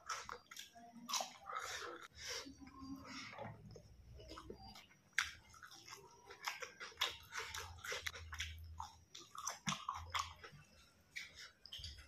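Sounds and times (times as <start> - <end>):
person chewing crunchy food: 0.0 - 12.0.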